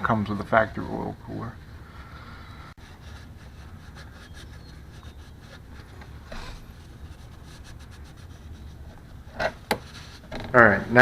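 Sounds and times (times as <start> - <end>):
steady low hum: 0.0 - 11.0
rubbing and scraping strokes: 2.8 - 11.0.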